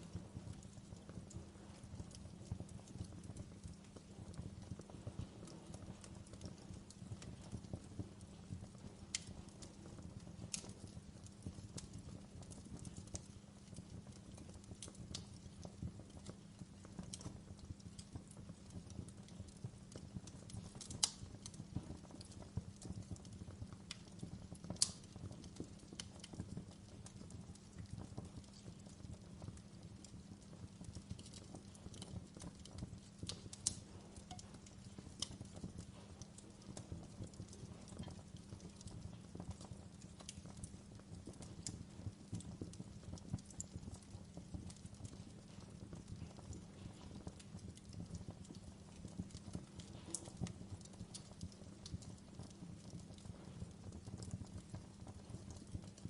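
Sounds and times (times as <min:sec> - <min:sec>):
logs crackling in a fireplace: 0:00.0 - 0:56.0
sharp fire pops: 0:19.5 - 0:26.6, 0:31.1 - 0:42.7, 0:49.3 - 0:51.2.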